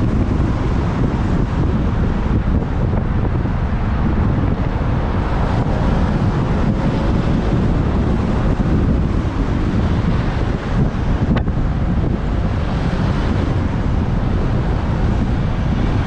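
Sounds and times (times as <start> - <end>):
motorbike ride: 0.0 - 16.0
wind buffeting microphone: 0.0 - 16.0.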